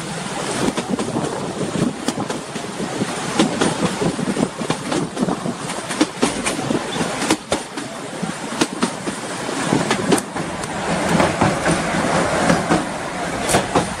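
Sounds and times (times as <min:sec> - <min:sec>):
train wheels clattering: 0:00.2 - 0:14.0.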